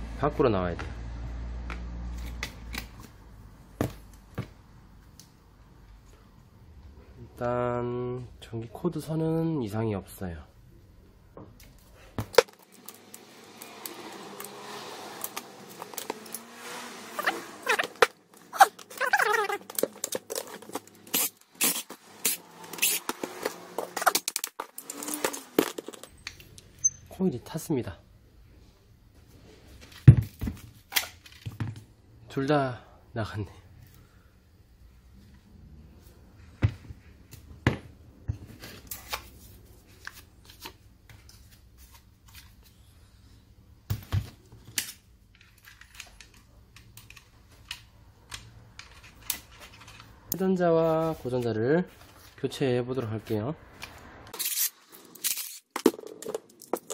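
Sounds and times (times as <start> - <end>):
tool parts clicking and scraping: 15.2 - 27.0, 44.7 - 50.4, 53.8 - 56.9
clicks and knocks of tool parts: 44.0 - 50.4.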